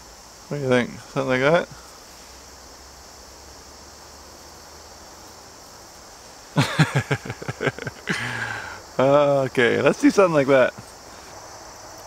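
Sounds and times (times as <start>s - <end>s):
crickets chirring: 0.0s - 12.0s
soft rustle: 1.8s - 2.7s, 10.7s - 12.0s.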